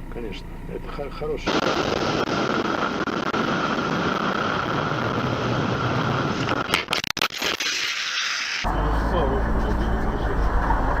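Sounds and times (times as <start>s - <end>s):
constant whine: 0.0s - 11.0s
car road and engine noise: 8.6s - 11.0s.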